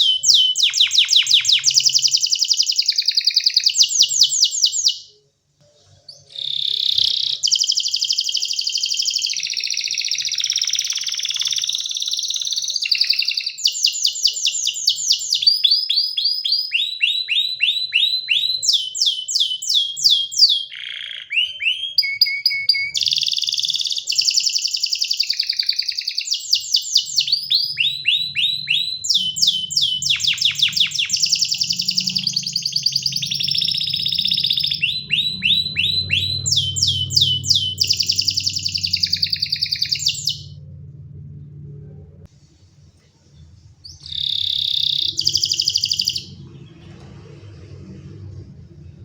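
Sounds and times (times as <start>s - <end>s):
canary singing rapid trills: 0.0s - 5.2s, 6.1s - 40.7s, 43.9s - 46.8s
faint low hum: 25.4s - 49.0s.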